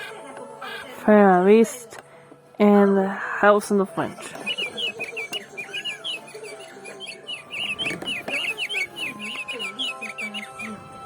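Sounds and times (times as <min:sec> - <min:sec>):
recorded birdsong through small speaker: 0:00.0 - 0:11.0.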